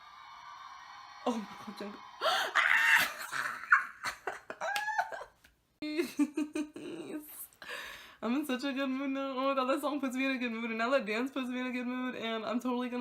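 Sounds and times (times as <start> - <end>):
woman laughing and squealing: 2.2 - 5.4.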